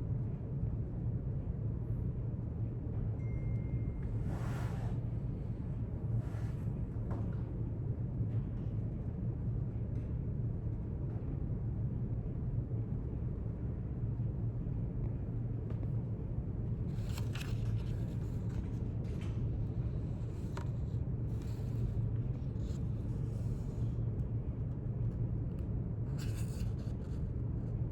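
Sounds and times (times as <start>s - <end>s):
low room rumble: 0.0s - 27.9s
faint paper rustles: 16.8s - 24.0s, 26.1s - 27.4s.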